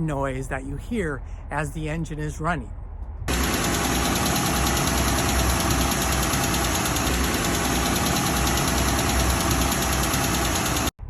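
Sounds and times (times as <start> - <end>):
car engine idling: 3.3 - 10.9
engine valve ticking: 3.3 - 10.9.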